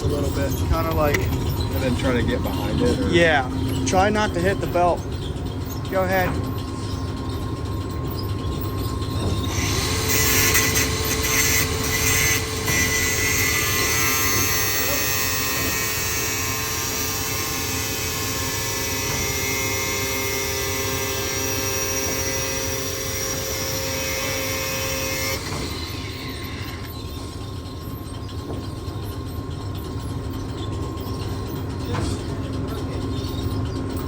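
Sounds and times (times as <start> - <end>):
angle grinder cutting metal: 9.5 - 26.9.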